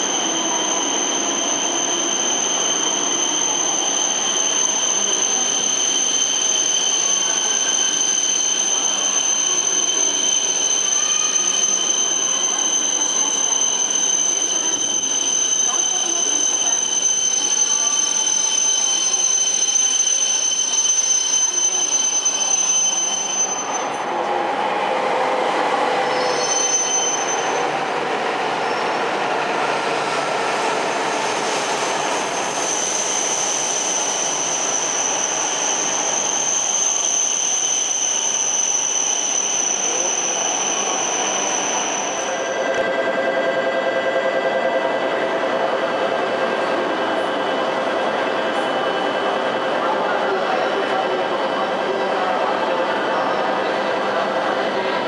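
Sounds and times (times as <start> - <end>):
high-pitched squeal: 0.0 - 43.2.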